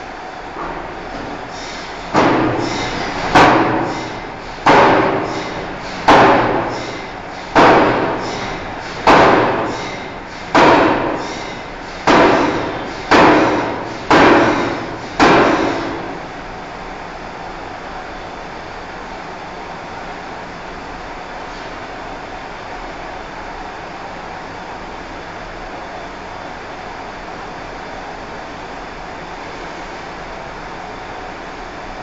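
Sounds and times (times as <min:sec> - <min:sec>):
forging hammer striking steel: 0:02.1 - 0:16.2.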